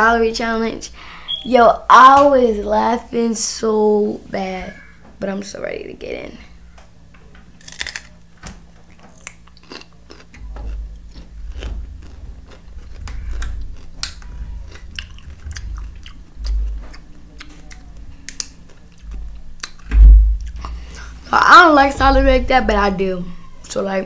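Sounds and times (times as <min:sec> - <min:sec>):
celery crunching: 0:07.5 - 0:08.2, 0:08.8 - 0:21.1
chewing thuds: 0:07.6 - 0:21.1.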